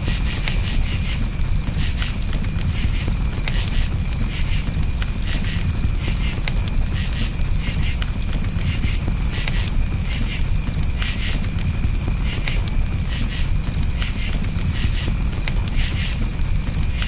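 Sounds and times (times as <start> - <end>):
campfire crackling: 0.0 - 17.0
crickets chirping: 0.0 - 17.0.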